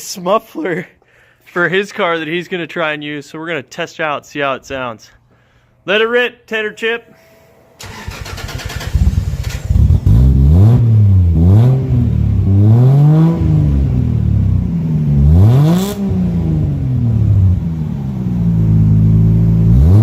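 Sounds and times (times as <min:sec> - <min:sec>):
car engine cranking and revving: 0:07.8 - 0:20.0.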